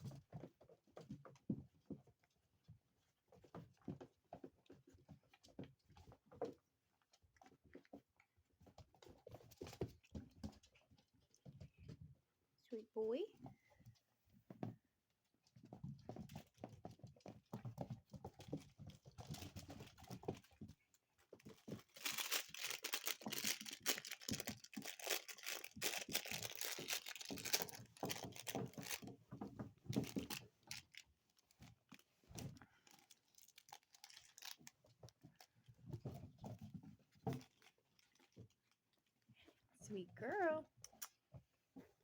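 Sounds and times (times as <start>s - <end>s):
puppies playing rustling: 13.4s - 39.7s.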